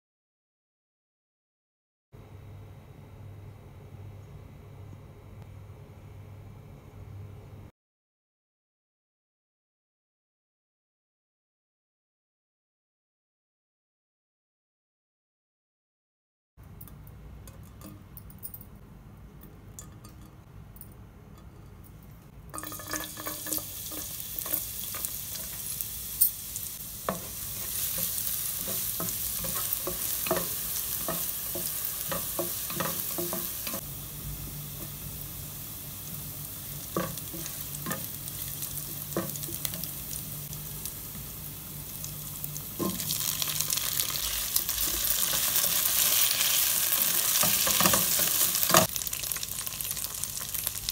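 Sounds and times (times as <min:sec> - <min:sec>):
garlic sizzling in hot oil: 0:22.6 - 0:50.9
spatula tapping and scraping pan: 0:27.0 - 0:33.8, 0:36.8 - 0:39.9, 0:47.3 - 0:48.9.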